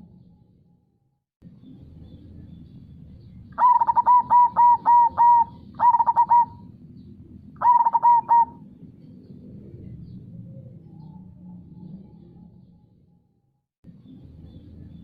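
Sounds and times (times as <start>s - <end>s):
dove cooing: 3.6s - 6.8s, 7.6s - 8.7s.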